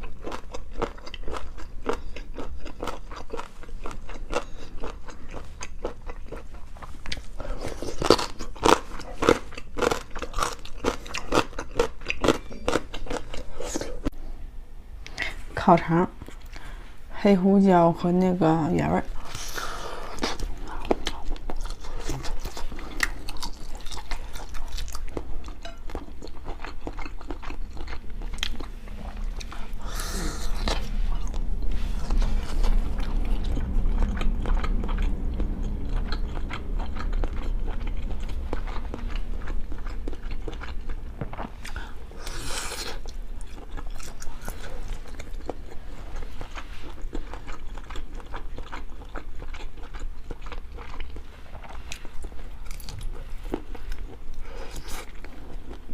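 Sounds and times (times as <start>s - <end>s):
biting and chewing: 19.2s - 55.9s.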